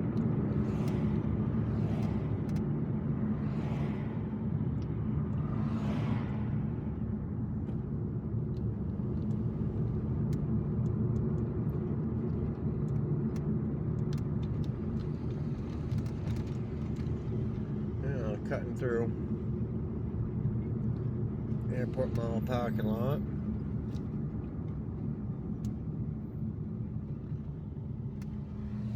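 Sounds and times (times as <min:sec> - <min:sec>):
car engine and road rumble: 0:00.0 - 0:28.9
vehicles whooshing past: 0:00.1 - 0:07.5, 0:28.0 - 0:28.9.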